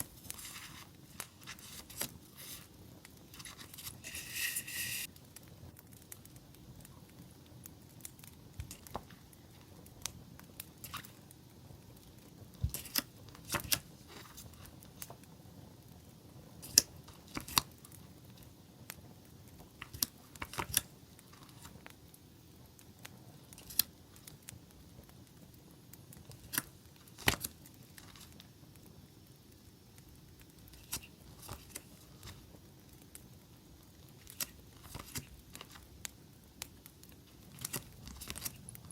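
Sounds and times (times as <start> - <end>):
campfire crackling and popping: 0.0 - 4.4, 5.0 - 38.9
paper rustling: 0.0 - 5.1, 12.6 - 14.7, 19.8 - 21.7, 27.2 - 28.3, 30.8 - 32.4, 34.2 - 35.8, 37.5 - 38.6.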